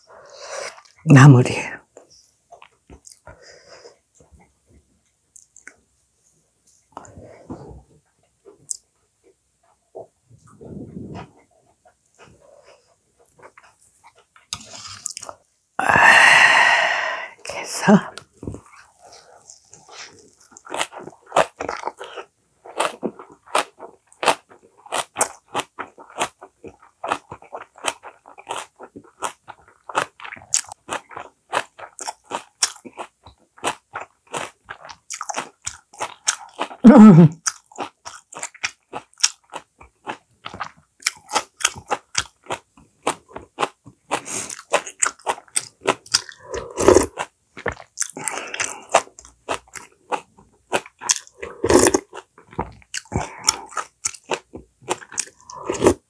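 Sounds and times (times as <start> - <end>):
soft clicking chews: 2.0 - 3.4, 5.0 - 5.8, 37.4 - 55.7.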